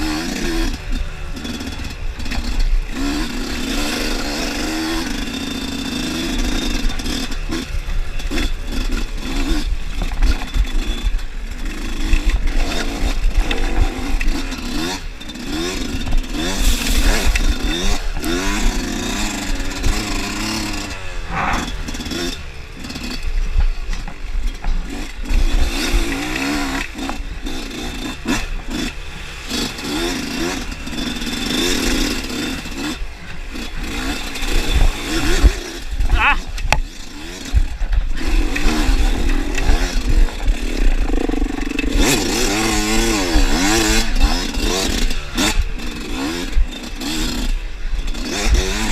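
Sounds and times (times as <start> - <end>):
dirt bike engine revving: 0.0 - 48.9
low rumble: 20.9 - 22.7.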